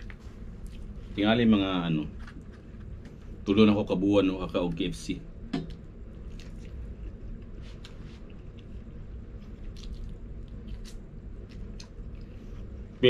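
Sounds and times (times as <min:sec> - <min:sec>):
person chewing crispy food: 0:06.2 - 0:12.5.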